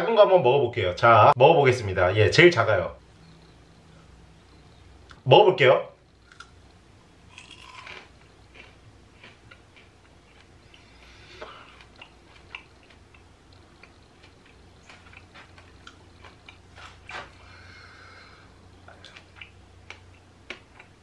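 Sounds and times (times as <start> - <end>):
person chewing crunchy food: 6.2 - 18.0, 18.8 - 21.0.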